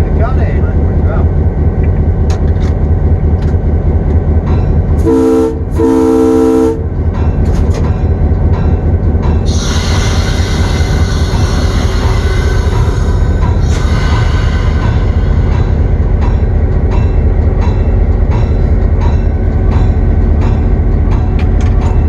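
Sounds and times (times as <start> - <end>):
diesel locomotive engine running: 0.0 - 22.0
locomotive air horn: 5.0 - 6.9.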